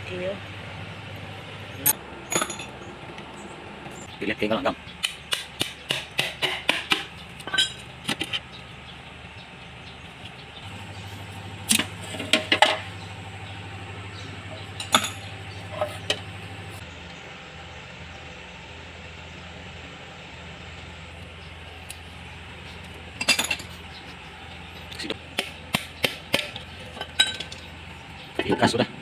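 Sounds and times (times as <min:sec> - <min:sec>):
steady low hum: 0:00.0 - 0:29.0
metal tools clinking on metal: 0:01.8 - 0:02.9, 0:07.4 - 0:08.4, 0:10.6 - 0:13.1, 0:14.4 - 0:16.8, 0:23.2 - 0:24.0, 0:26.4 - 0:28.8.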